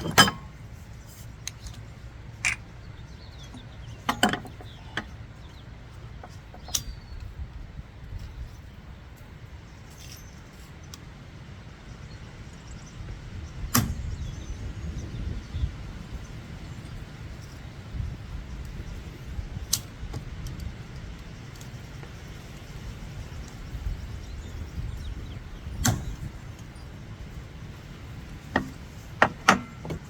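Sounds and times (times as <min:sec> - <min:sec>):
tools clicking and knocking: 0:00.0 - 0:00.5, 0:02.4 - 0:02.6, 0:03.5 - 0:05.1, 0:06.2 - 0:07.0, 0:28.5 - 0:30.0.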